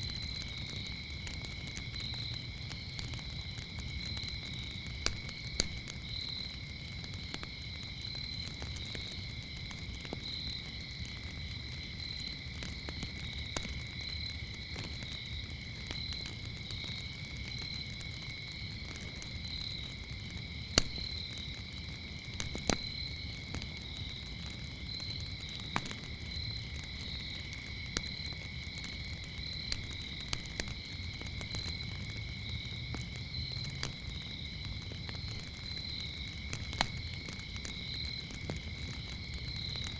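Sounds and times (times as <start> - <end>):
crickets chirping: 0.0 - 39.9
wood fire crackling and popping: 0.0 - 39.9.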